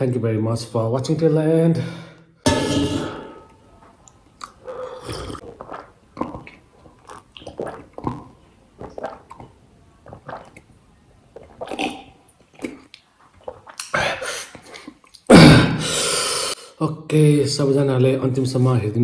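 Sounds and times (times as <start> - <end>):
person chewing food: 3.8 - 10.7
mouth sounds and clicks: 11.4 - 15.3.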